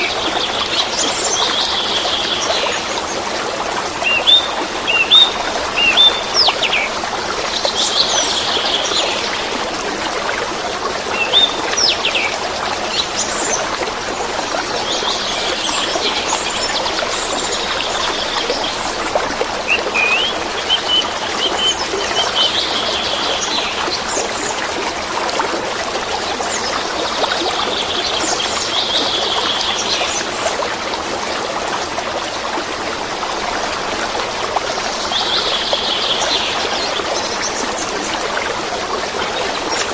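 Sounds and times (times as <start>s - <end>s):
babbling water: 0.0s - 39.9s
small birds chirping: 19.7s - 23.8s.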